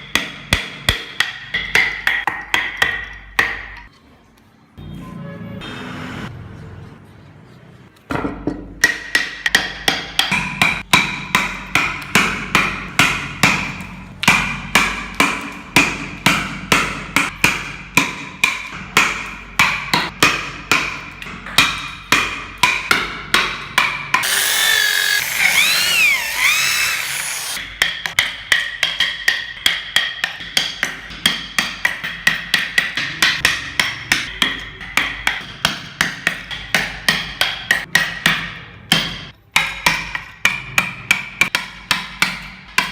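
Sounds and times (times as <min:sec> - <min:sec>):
mallet striking chisel: 0:00.0 - 0:03.9, 0:08.5 - 0:21.0
whirring noise: 0:24.2 - 0:27.6.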